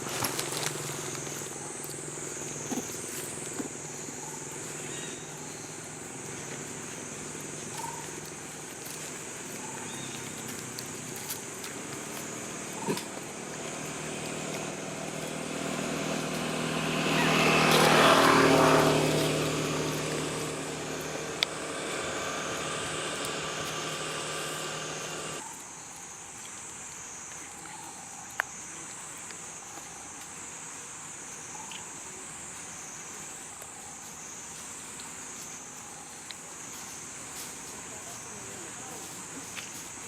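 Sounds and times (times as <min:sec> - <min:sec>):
vehicle engine passing: 0:12.1 - 0:25.4
high-pitched buzz: 0:13.9 - 0:25.4.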